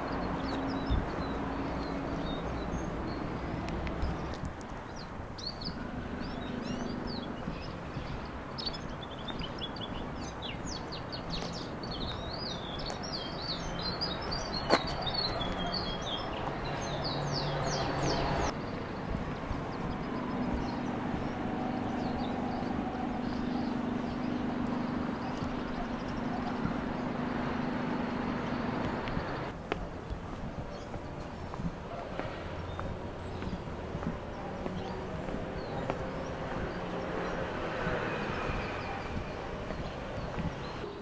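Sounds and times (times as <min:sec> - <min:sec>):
small birds chirping: 0:00.0 - 0:41.0
low outdoor hum: 0:18.3 - 0:41.0.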